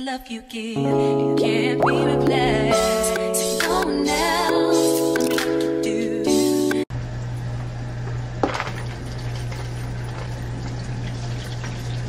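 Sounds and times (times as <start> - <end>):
water running from a tap: 8.5 - 12.0.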